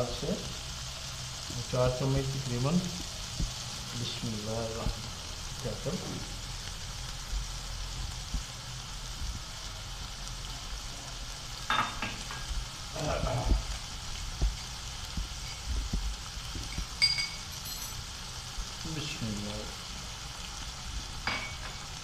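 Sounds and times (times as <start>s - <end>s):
chicken sizzling in frying pan: 0.0s - 22.0s
metallic clink: 16.7s - 18.1s.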